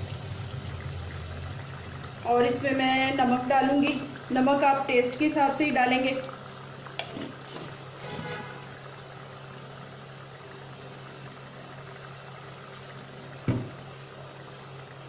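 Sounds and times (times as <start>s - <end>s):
masala sizzling in a pot: 0.0s - 15.0s.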